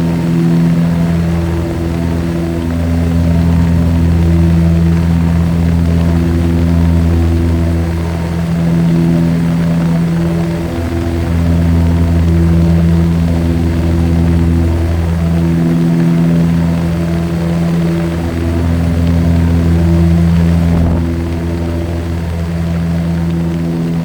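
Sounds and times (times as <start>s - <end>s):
propeller airplane engine droning: 0.0s - 24.0s.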